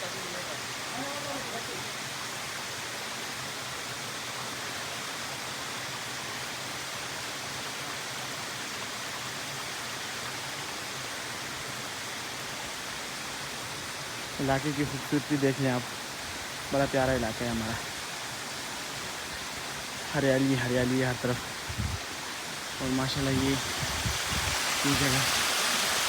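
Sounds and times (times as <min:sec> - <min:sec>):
steady rushing hiss: 0:10.4 - 0:26.0.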